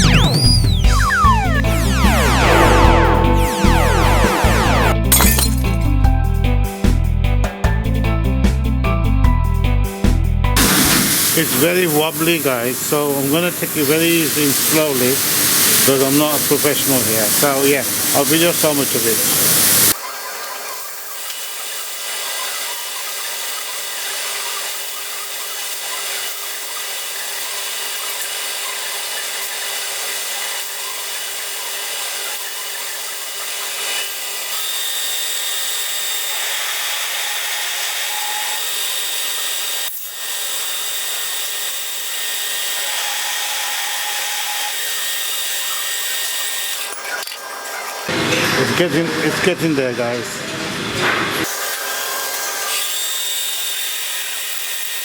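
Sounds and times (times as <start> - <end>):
power tool cutting metal: 10.6 - 20.0, 20.9 - 48.1, 51.4 - 55.0.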